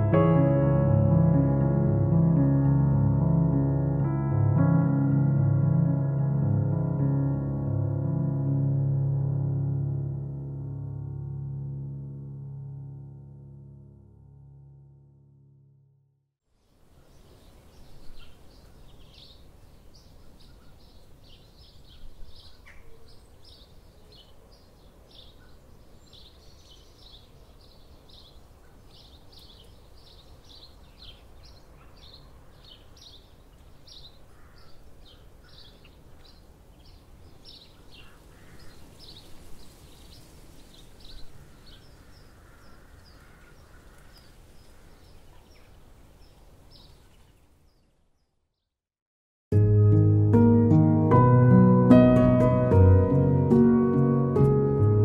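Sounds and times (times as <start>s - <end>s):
small birds chirping: 16.9s - 48.7s.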